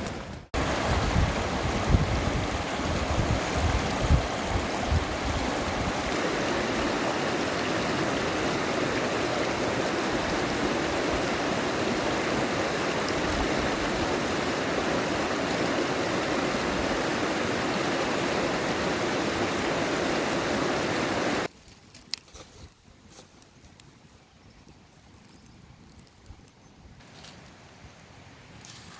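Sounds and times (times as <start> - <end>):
stream water rushing: 0.0 - 21.5.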